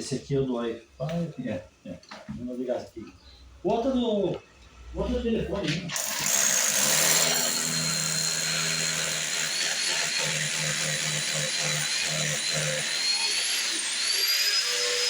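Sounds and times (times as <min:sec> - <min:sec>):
electric power tool whining: 0:05.9 - 0:15.0.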